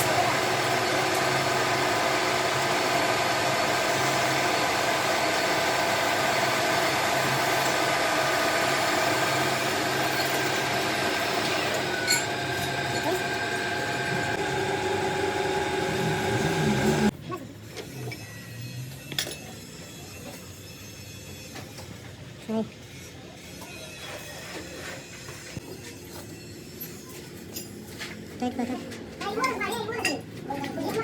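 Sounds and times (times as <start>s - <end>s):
machine tool motor hum: 0.0s - 17.1s
metal cutting noise: 0.0s - 17.1s.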